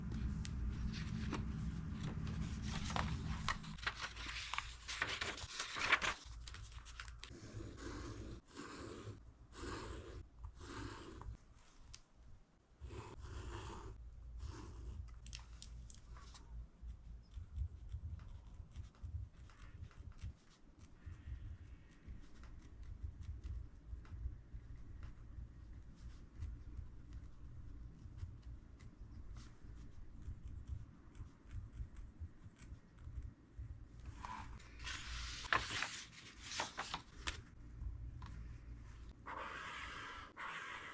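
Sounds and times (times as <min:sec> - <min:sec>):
paper rustling: 0:00.1 - 0:08.9, 0:34.1 - 0:37.6
swiping strokes across page: 0:00.7 - 0:11.3, 0:39.3 - 0:40.9
pen scratching: 0:07.3 - 0:11.4, 0:12.8 - 0:15.1, 0:39.3 - 0:40.9.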